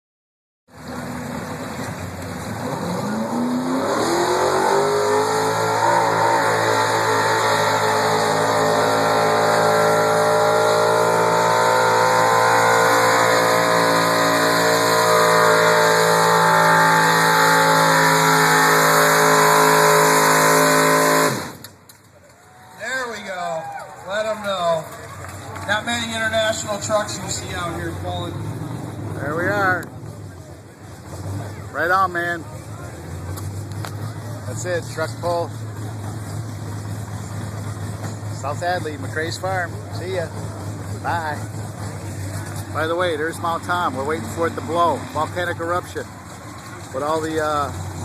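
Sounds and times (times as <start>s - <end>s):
truck engine revving: 0.7s - 21.9s, 24.0s - 48.0s.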